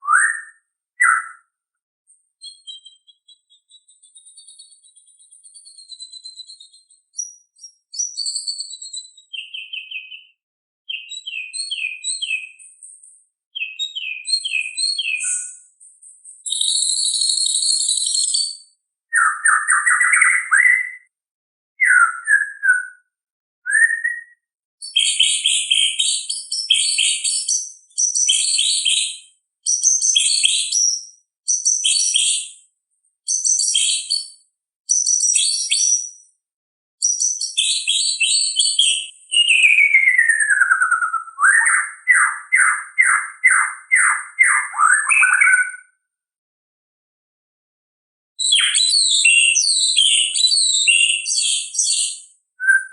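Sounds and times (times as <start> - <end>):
songbird whistling and chirping: 0.0 - 21.1, 21.8 - 32.7, 33.3 - 36.4, 37.0 - 45.9, 48.4 - 52.9.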